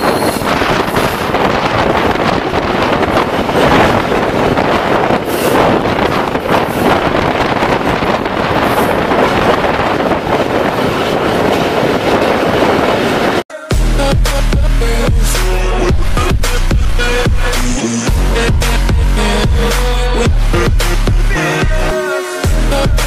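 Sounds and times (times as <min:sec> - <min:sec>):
train wheels rattling on track: 0:00.0 - 0:13.4
wind buffeting microphone: 0:00.0 - 0:13.4.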